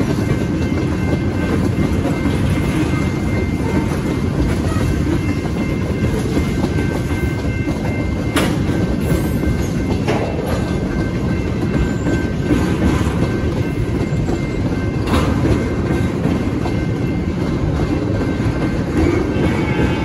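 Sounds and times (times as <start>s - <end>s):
clickety-clack over rail joints: 0.0s - 20.0s
freight train wheels rumbling: 0.0s - 20.0s.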